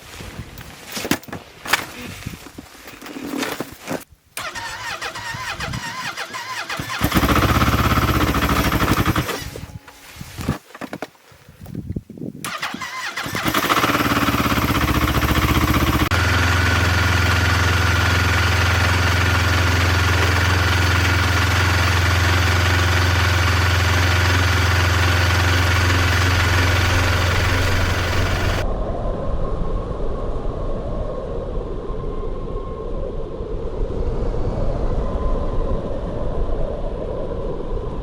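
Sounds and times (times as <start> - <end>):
engine cranking and starting: 4.4 - 10.0, 12.4 - 28.6
engine running steadily: 4.4 - 10.0, 12.5 - 28.6.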